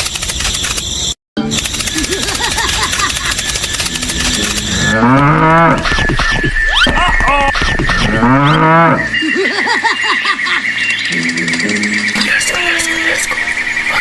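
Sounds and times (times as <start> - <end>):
high-pitched whine: 3.0 - 9.5, 11.1 - 14.0
cow mooing: 4.7 - 6.0, 7.3 - 9.2.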